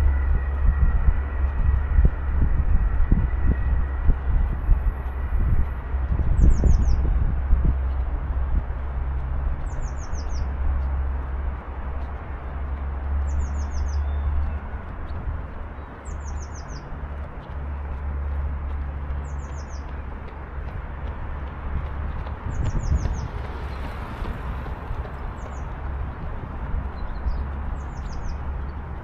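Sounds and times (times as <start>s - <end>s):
songbird singing: 6.3s - 7.2s, 9.2s - 11.3s, 12.5s - 18.3s, 19.0s - 20.4s, 22.1s - 24.0s, 26.8s - 29.0s.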